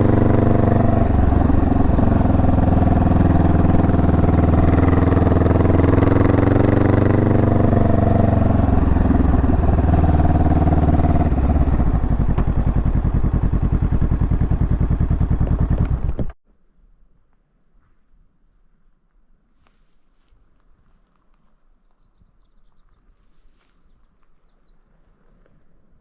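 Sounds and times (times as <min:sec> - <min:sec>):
motorcycle engine idling: 0:00.0 - 0:16.4.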